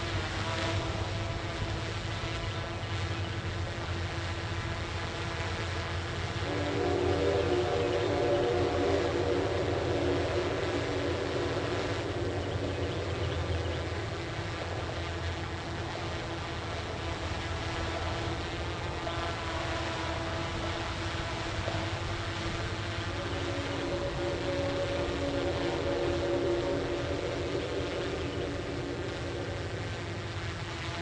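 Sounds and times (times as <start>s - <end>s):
locomotive engine drone: 0.0s - 31.0s
wheels rumbling on rail: 6.5s - 30.6s.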